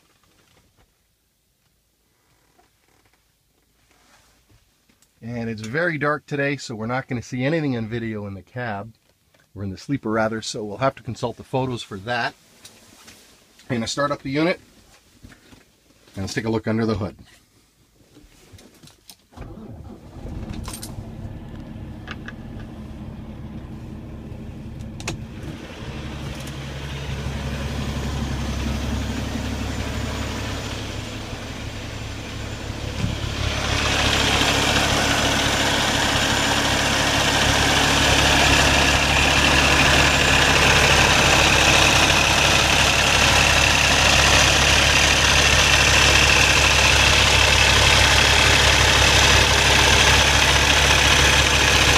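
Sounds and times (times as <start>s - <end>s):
diesel engine cranking: 19.3s - 51.9s
diesel engine idling: 19.4s - 51.9s.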